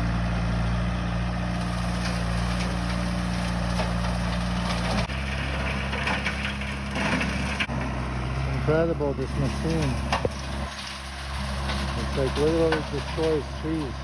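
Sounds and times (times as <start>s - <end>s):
diesel engine running: 0.0s - 14.0s
brush and wood breaking: 1.6s - 5.1s.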